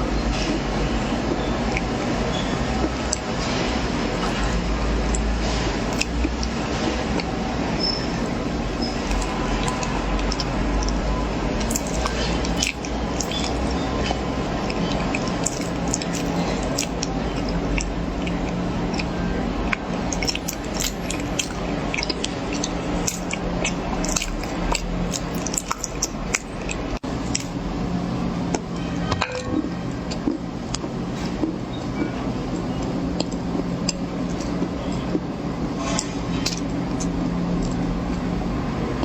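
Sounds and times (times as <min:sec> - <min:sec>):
steady low hum: 0:00.0 - 0:39.0
person chewing crunchy corn: 0:02.8 - 0:27.6, 0:35.8 - 0:37.8.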